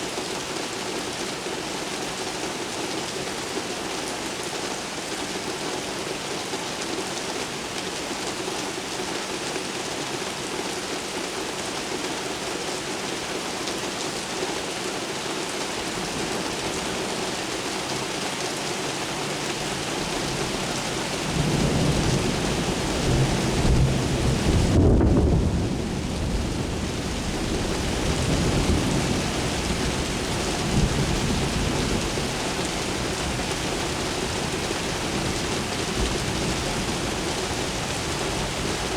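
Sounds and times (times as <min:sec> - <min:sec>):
heavy rain falling: 0:00.0 - 0:38.9
low thunder rumble: 0:21.3 - 0:32.2.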